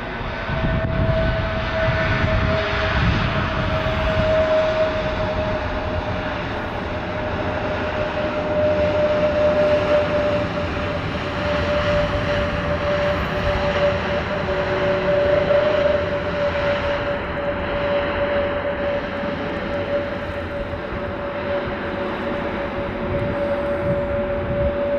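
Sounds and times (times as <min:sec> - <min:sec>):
jet engines running: 0:00.0 - 0:24.9.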